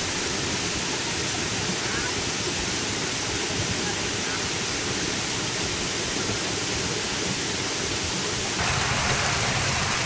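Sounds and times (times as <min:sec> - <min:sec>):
waterfall roaring: 0:08.3 - 0:10.0.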